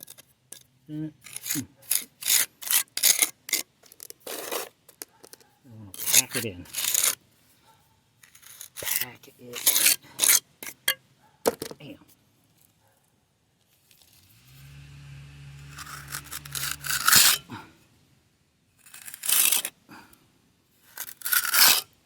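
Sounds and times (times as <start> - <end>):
hand tool scraping wet concrete: 0.0 - 7.2, 8.2 - 11.0, 15.4 - 17.8, 18.8 - 19.8, 20.8 - 21.9.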